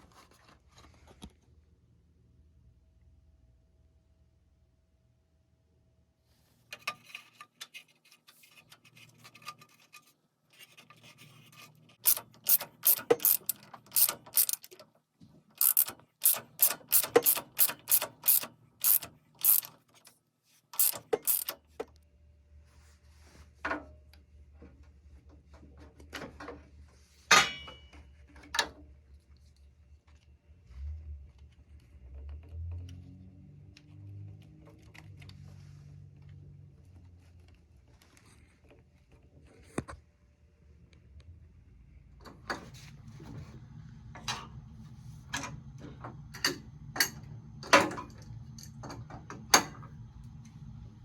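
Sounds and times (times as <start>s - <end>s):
metal clicks: 12.0s - 14.8s, 15.6s - 20.1s, 20.8s - 21.6s
ratchet wrench clicking: 12.0s - 14.8s, 15.6s - 20.1s, 20.8s - 21.6s.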